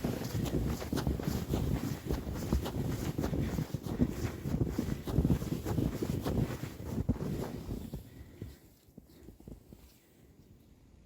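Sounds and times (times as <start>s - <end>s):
wind buffeting microphone: 0.0s - 8.4s
footsteps crunching through snow: 0.0s - 10.1s.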